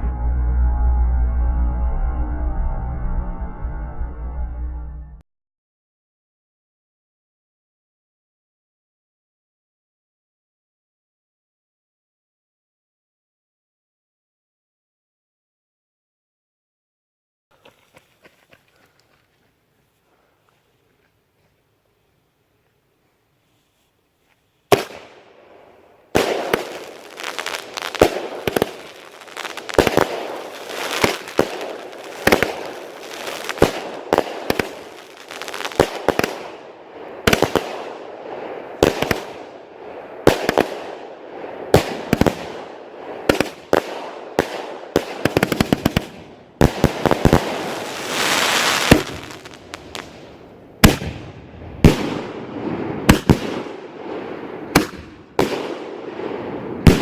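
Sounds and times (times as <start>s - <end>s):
firework bangs: 24.7s - 57.0s
firework crackling: 24.7s - 57.0s.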